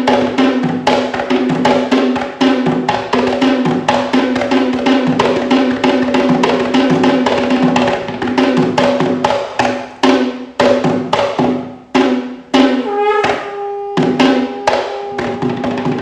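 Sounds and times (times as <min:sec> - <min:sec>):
drums in fast rhythm: 0:00.0 - 0:16.0
steady held note: 0:12.8 - 0:16.0.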